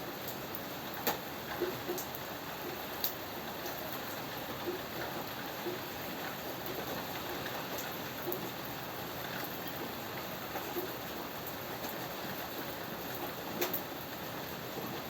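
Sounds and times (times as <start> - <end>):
raindrops ticking: 0.2 - 4.0, 13.1 - 13.9.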